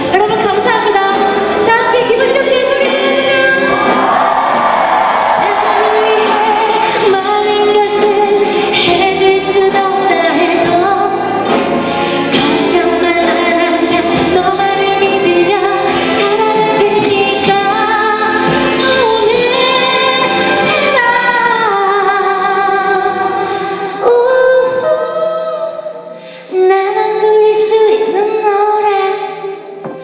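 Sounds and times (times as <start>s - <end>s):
orchestra accompanying: 0.0s - 23.9s
woman singing a pop ballad: 0.0s - 30.0s.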